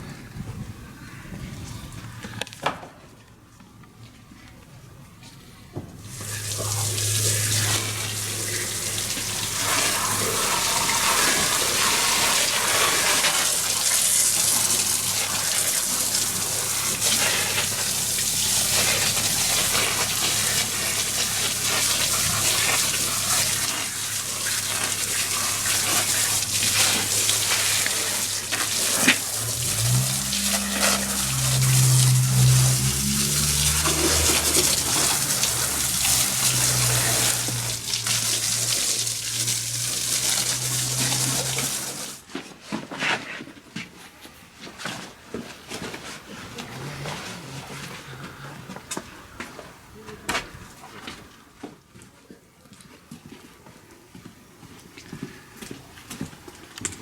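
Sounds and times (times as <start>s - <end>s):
low hum: 6.0s - 12.9s, 14.8s - 38.1s
water running from tap: 6.0s - 42.2s.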